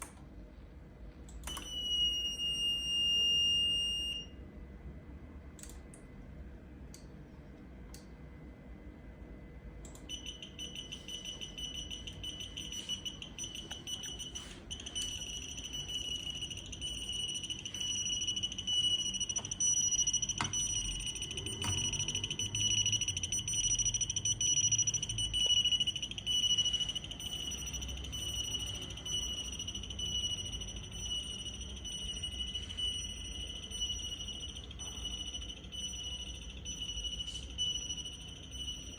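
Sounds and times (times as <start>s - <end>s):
high-pitched electronic buzzer tone: 10.1s - 38.9s.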